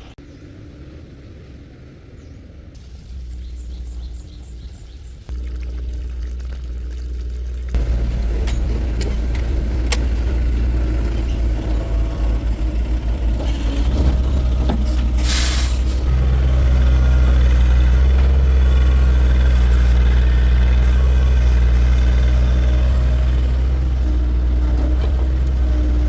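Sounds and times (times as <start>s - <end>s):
heavy vehicle engine running: 0.0s - 26.0s
air hiss: 14.9s - 16.1s.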